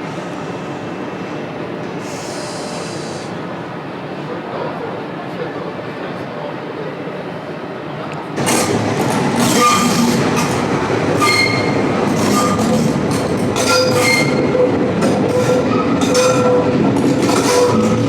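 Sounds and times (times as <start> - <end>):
train rumbling on rails: 0.0 - 18.0
train wheels squealing: 9.5 - 10.1, 11.2 - 12.8, 13.6 - 14.7.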